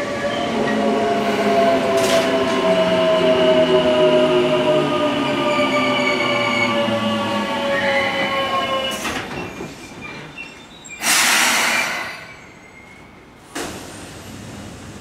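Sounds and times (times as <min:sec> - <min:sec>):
loud hiss of air: 0:11.0 - 0:12.3.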